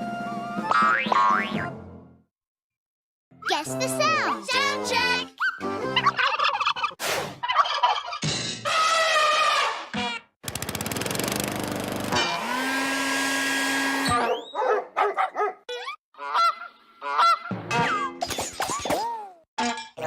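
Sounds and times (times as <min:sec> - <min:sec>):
fast rattling buzz: 0:10.4 - 0:13.7.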